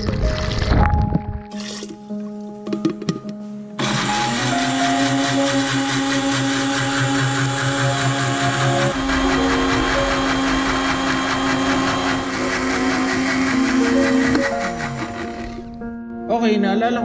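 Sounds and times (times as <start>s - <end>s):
electric blender grinding: 3.8s - 15.8s.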